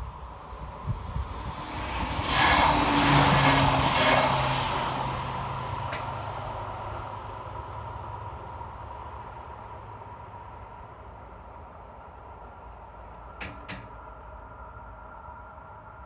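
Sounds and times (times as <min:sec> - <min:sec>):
train passing: 0:00.0 - 0:16.0
crossing barrier click: 0:05.9 - 0:06.2, 0:13.1 - 0:14.0.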